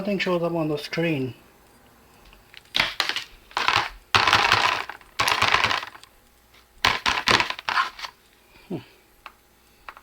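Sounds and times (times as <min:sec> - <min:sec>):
hands rustling phone cable: 0:02.1 - 0:08.5, 0:09.2 - 0:10.0.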